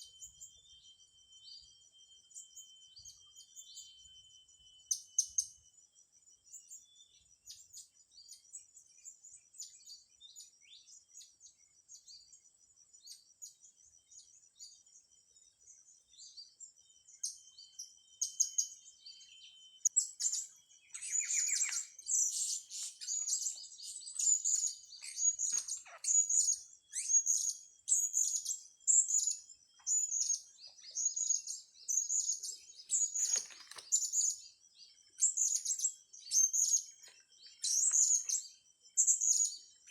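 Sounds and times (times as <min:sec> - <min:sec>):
small bird chirping: 0:00.0 - 0:39.9.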